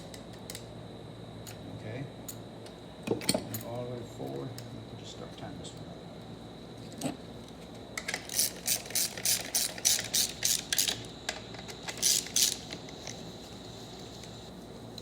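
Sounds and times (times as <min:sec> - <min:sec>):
hand ratchet clicking: 0:08.2 - 0:11.0, 0:11.8 - 0:12.8.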